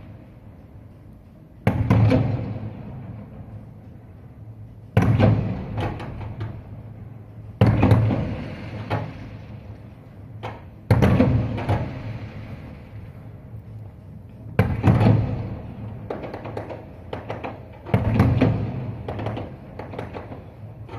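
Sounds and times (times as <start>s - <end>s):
fireworks booming: 5.0s - 6.6s, 7.6s - 13.4s, 14.6s - 20.9s.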